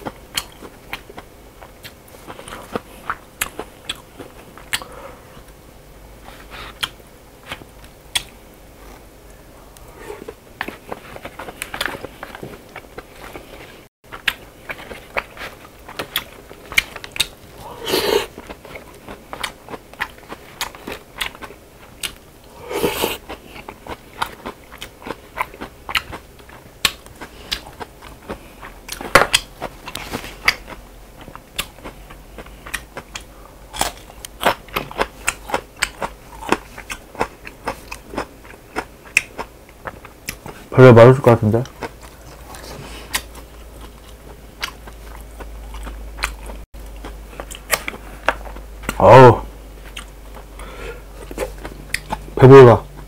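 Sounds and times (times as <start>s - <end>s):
wet chewing with mouth clicks: 0.0s - 5.6s, 6.2s - 9.0s, 9.8s - 40.7s, 41.6s - 49.0s, 49.8s - 53.0s
slurping noodles: 17.6s - 18.4s, 22.5s - 23.3s.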